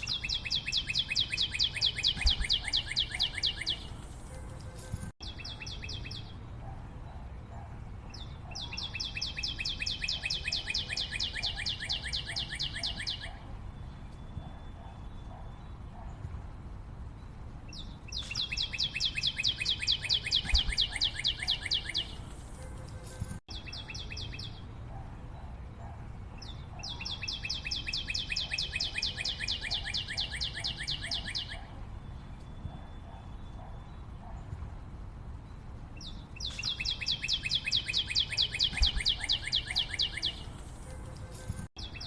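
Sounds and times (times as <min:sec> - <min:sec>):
bird trilling: 0:00.0 - 0:03.9, 0:08.5 - 0:13.4, 0:18.1 - 0:22.2, 0:26.8 - 0:31.7, 0:36.4 - 0:40.5.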